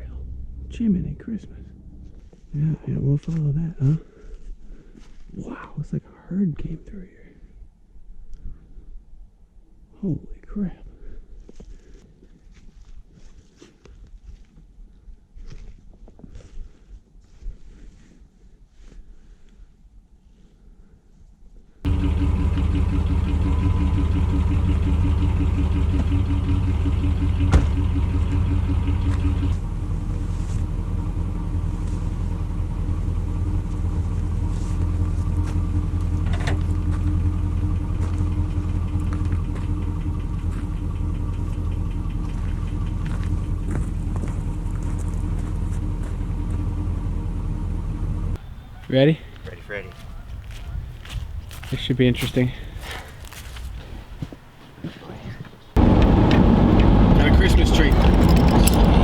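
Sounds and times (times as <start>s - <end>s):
vehicle engine running: 0.0s - 3.5s, 21.9s - 48.8s, 55.8s - 59.0s.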